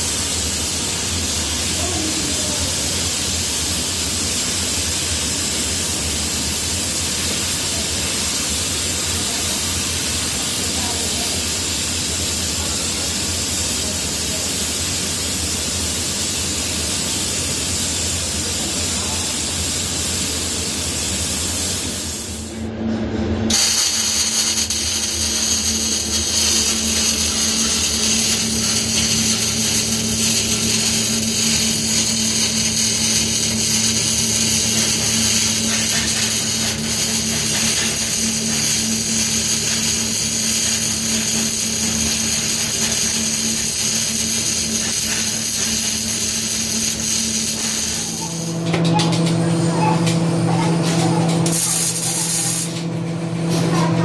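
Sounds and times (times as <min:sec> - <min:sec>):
workshop noise: 0:00.0 - 0:54.0.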